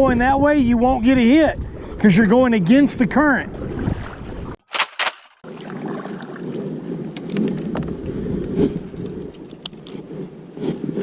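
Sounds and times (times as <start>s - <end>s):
wind noise on microphone: 0.0s - 4.6s, 5.8s - 11.0s.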